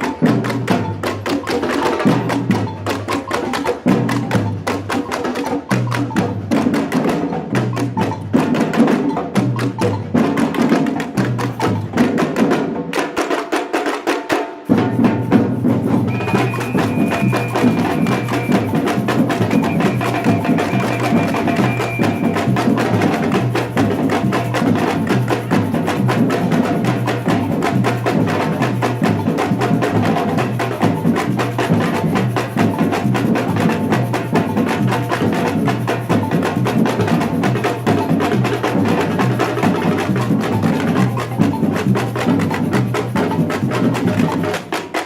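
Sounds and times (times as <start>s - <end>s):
samba drum ensemble: 0.0s - 45.0s
high held tone: 16.1s - 22.5s.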